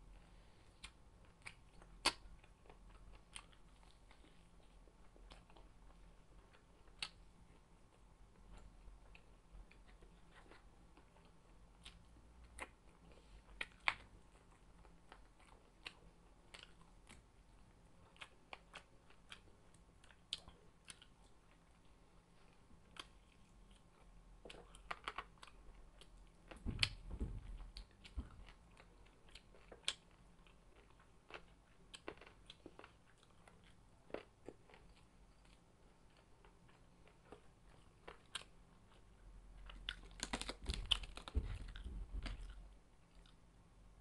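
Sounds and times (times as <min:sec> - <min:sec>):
person chewing and biting: 0:27.8 - 0:39.0, 0:39.6 - 0:43.4
sharp clicks and crunches: 0:39.7 - 0:42.6.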